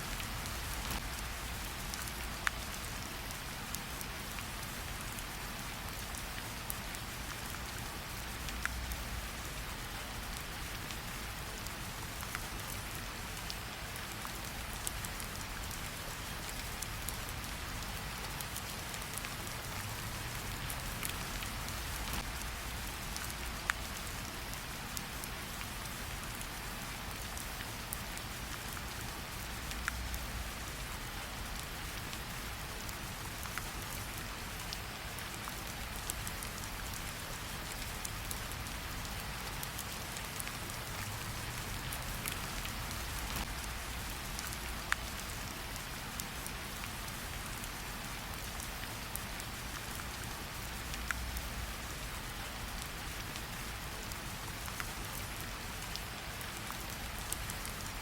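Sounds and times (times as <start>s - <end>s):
steady rain hissing: 0.0s - 58.0s.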